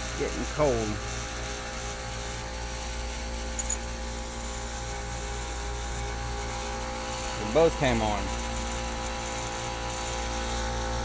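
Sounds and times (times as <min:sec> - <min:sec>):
heat pump compressor hum: 0:00.0 - 0:11.0.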